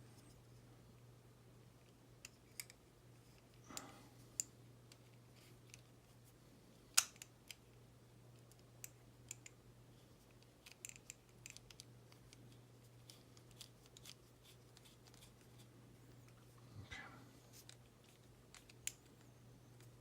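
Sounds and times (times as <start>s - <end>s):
steady low hum: 0.0s - 20.0s
small plastic parts clicking: 2.2s - 5.9s, 6.9s - 7.8s, 8.4s - 9.6s, 10.2s - 15.3s, 17.6s - 20.0s.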